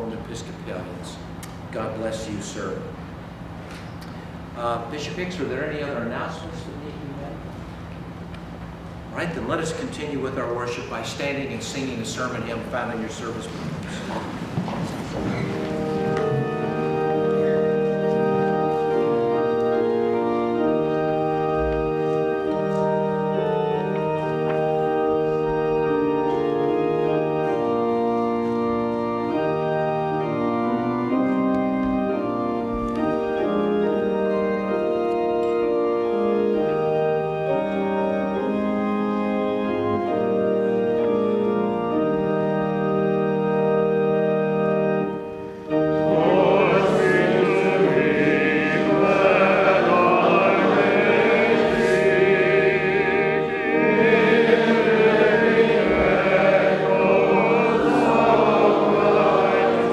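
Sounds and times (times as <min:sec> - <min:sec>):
church organ playing chords: 0:00.0 - 0:59.9
congregation singing: 0:12.1 - 0:59.9.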